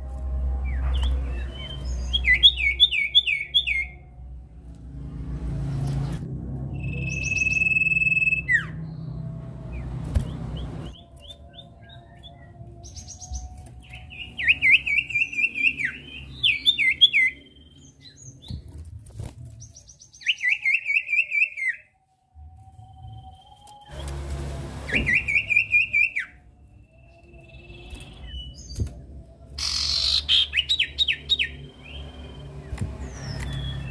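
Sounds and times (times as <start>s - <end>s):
low rumble: 0.0s - 16.6s, 22.2s - 29.6s
bird singing whistles and trills: 0.6s - 4.0s, 6.7s - 9.1s, 9.7s - 18.7s, 19.6s - 22.0s, 24.9s - 33.9s.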